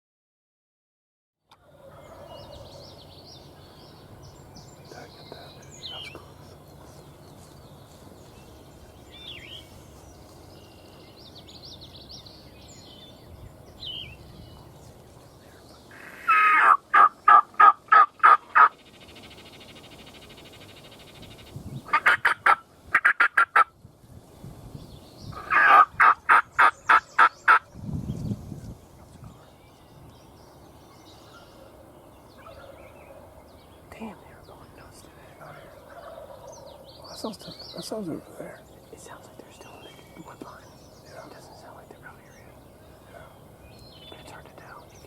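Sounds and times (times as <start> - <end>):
faint songbird chirps: 1.5 - 17.6, 18.6 - 21.9, 26.3 - 45.0
turkey gobbling: 15.9 - 18.7, 21.9 - 23.7, 25.4 - 27.6.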